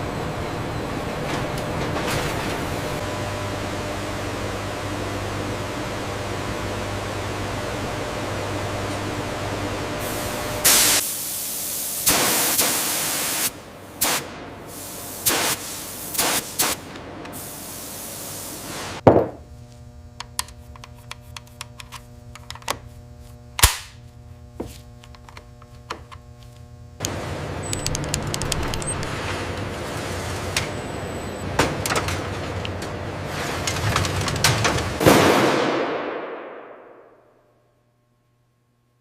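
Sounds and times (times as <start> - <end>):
machine hum: 0.0 - 11.0, 16.8 - 39.0
hissing bursts: 10.7 - 16.8
sharp metallic clicks: 27.0 - 29.1.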